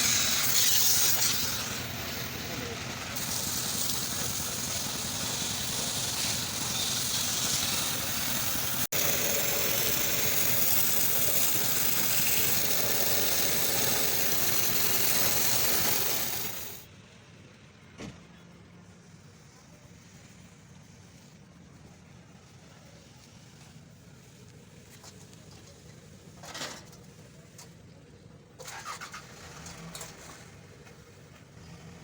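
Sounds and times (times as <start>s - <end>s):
high-pressure spray hissing: 0.0s - 16.9s.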